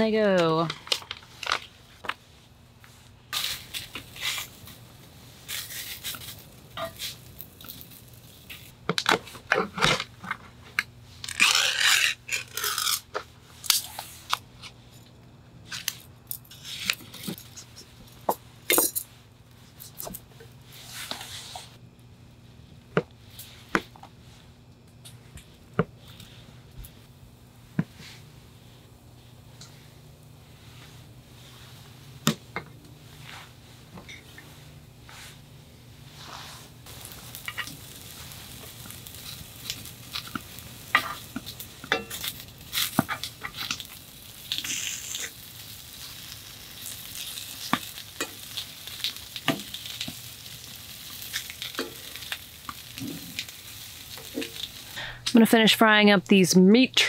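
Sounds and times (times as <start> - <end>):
food packaging tearing and crinkling: 3.3 - 4.8, 5.4 - 10.1, 11.2 - 14.4, 36.9 - 54.9
utensil scraping in frying pan: 3.3 - 8.7, 36.1 - 55.0.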